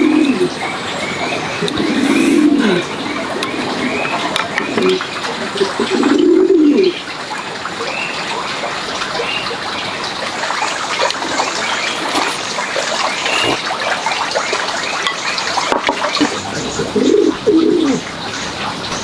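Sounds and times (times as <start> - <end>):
bird cooing: 0.0 - 7.0, 13.1 - 13.6, 16.1 - 18.0
birds chirping: 0.0 - 19.0.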